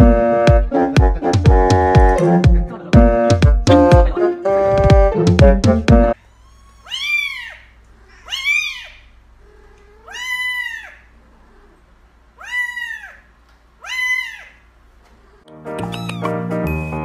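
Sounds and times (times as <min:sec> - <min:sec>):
cat meowing: 0:06.2 - 0:11.8, 0:12.4 - 0:14.7, 0:15.3 - 0:17.0.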